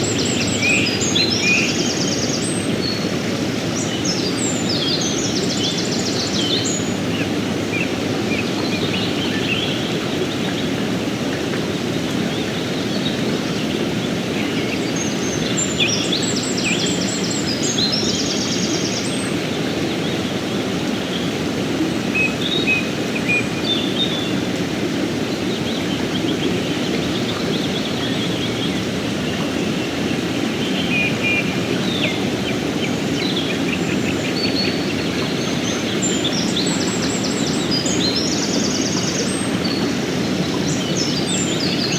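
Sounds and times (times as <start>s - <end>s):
river flowing over rocks: 0.0s - 41.9s
birds chirping and trilling: 25.6s - 41.9s.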